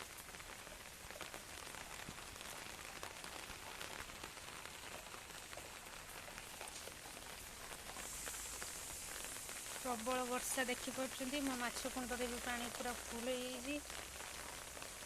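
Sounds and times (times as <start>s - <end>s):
heavy rain falling: 0.0s - 15.0s
raindrops ticking on surfaces: 0.0s - 15.0s.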